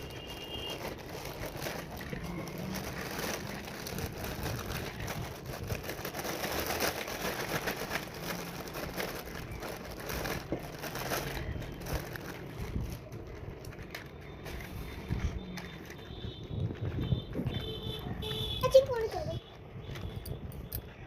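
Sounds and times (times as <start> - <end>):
packaging crinkling and rustling: 0.0 - 19.1.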